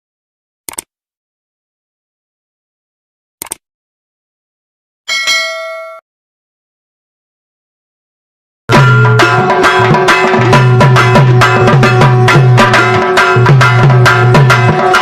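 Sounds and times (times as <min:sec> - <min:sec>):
struck metal clang ringing: 0:05.1 - 0:06.0.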